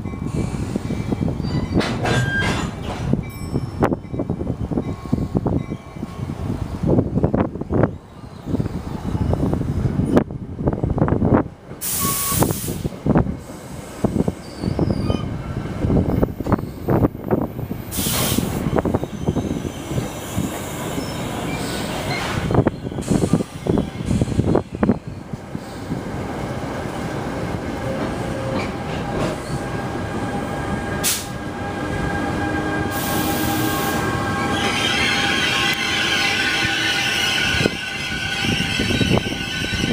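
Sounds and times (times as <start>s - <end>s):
wind buffeting microphone: 0.0s - 11.8s, 12.4s - 39.9s
train rumbling on rails: 0.0s - 39.9s
air brakes hissing: 11.8s - 14.9s, 17.9s - 18.7s, 22.9s - 24.5s, 31.0s - 31.4s, 32.9s - 34.1s
faint squeal tones: 14.4s - 15.4s.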